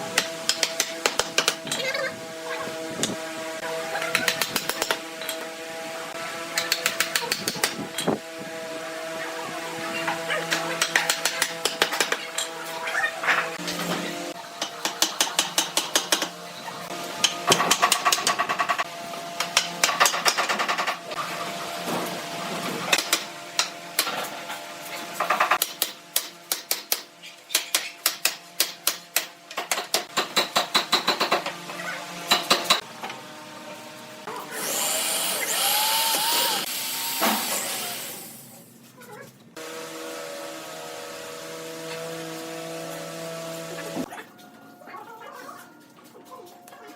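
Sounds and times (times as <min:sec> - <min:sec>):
tool whirring: 0:34.2 - 0:38.6.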